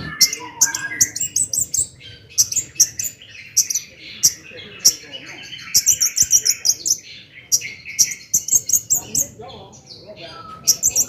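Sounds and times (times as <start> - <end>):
whistled bird notes: 0.0 - 9.4, 10.2 - 11.0
bird singing high chirps: 0.0 - 11.0.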